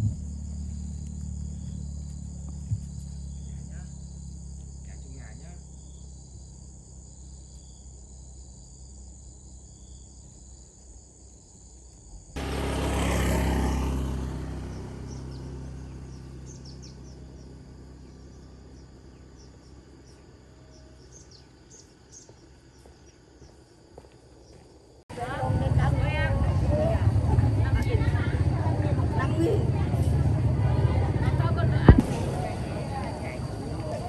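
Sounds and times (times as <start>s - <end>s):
crickets trilling: 0.0s - 34.0s
loud low rushing noise: 30.2s - 34.0s.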